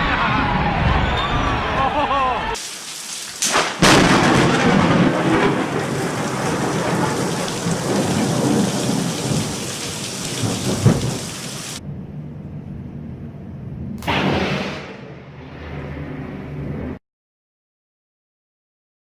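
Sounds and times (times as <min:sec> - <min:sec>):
heavy rain: 0:02.6 - 0:11.8
rolling thunder: 0:03.5 - 0:11.8
faint low rumble: 0:11.8 - 0:17.0.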